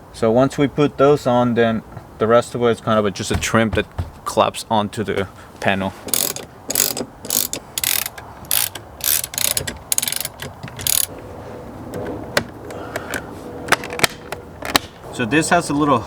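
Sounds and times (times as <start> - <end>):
hand tool ratcheting: 6.1 - 11.1.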